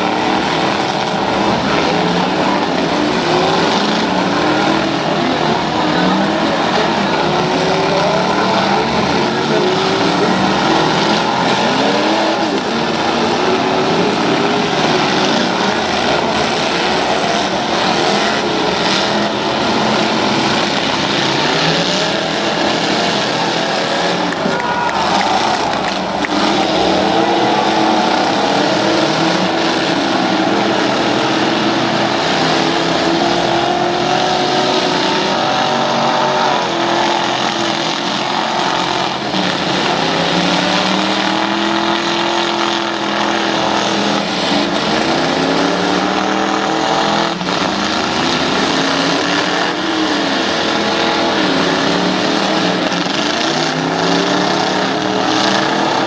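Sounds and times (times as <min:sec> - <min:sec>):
truck engines revving: 0:00.0 - 0:56.0.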